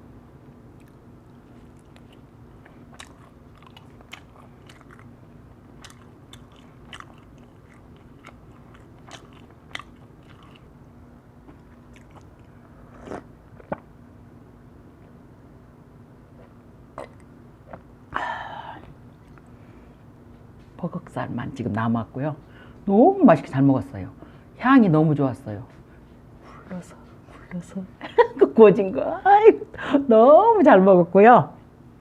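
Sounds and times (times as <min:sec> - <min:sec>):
faint steady hum: 0:00.0 - 0:32.0
chewing crispy chicken: 0:00.8 - 0:10.7, 0:11.4 - 0:13.8
mouth smacks: 0:16.3 - 0:17.9.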